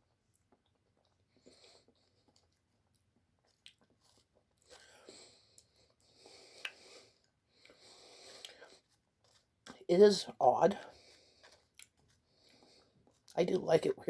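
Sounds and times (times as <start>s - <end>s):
wet chewing: 0.3s - 9.8s, 10.9s - 13.4s
mouth clicks and smacks: 1.8s - 4.9s, 5.6s - 7.0s, 7.6s - 9.8s, 11.4s - 13.4s.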